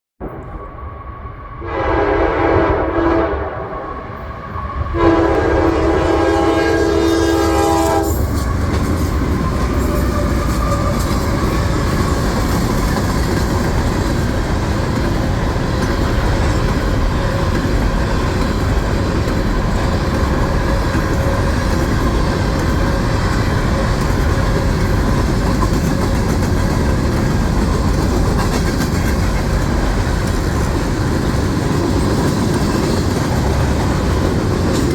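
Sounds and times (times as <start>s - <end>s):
train rumbling along rails: 0.2s - 34.9s
train horn blasts: 1.6s - 8.4s.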